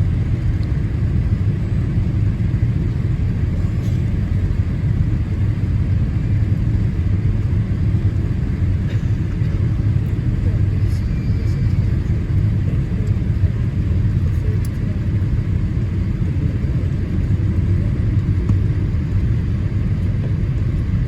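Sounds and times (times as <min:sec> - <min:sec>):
aircraft cabin engine rumble: 0:00.0 - 0:21.0.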